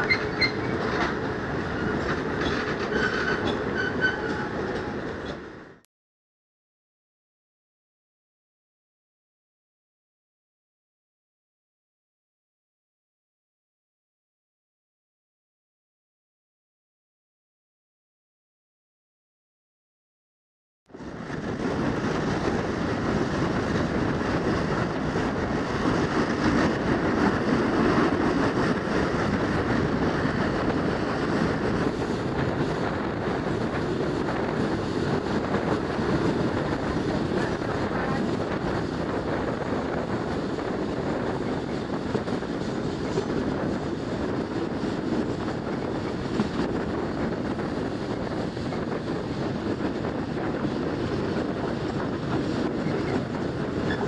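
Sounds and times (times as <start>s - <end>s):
train wheels rattling on rails: 0.0s - 5.8s, 21.0s - 54.0s.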